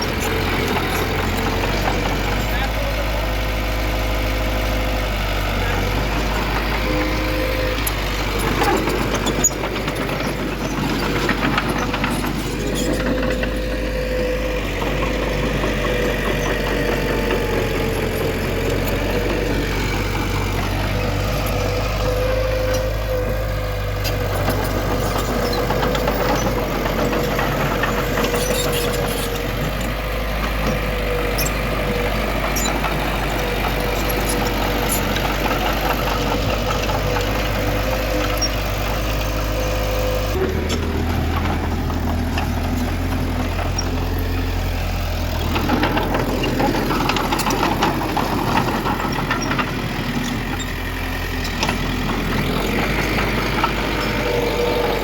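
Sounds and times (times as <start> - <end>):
heavy diesel engines running: 0.0 - 55.0.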